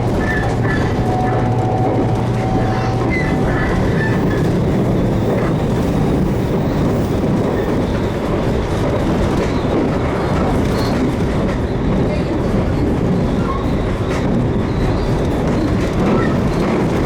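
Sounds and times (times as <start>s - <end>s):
low hum: 0.0s - 6.4s
train wheels rumbling on rail: 0.0s - 17.0s.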